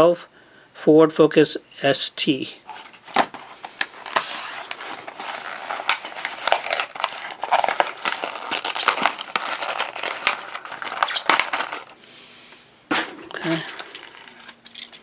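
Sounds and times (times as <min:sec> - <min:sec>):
plastic packaging crinkling: 0:02.7 - 0:12.0, 0:13.1 - 0:15.0.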